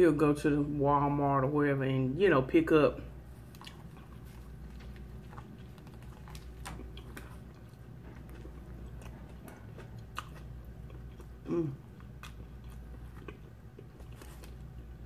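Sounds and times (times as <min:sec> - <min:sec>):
person chewing food: 0:03.2 - 0:15.0.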